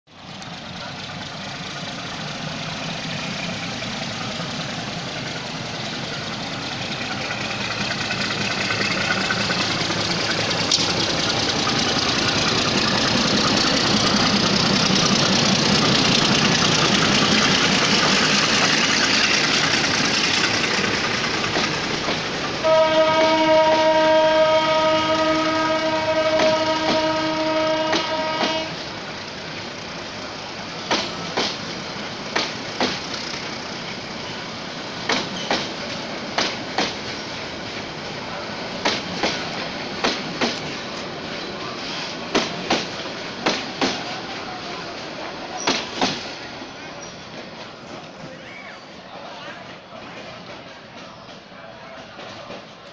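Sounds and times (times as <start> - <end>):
train engine and wheels rumbling: 0.1 - 52.9
wheel clicks over rail joints: 9.9 - 14.1
locomotive horn blast: 22.6 - 28.9.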